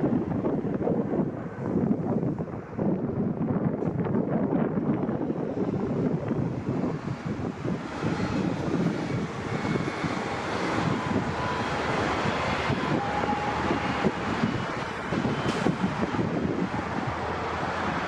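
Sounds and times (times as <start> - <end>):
wind buffeting microphone: 0.0 - 18.0
jet engines running: 4.7 - 18.0.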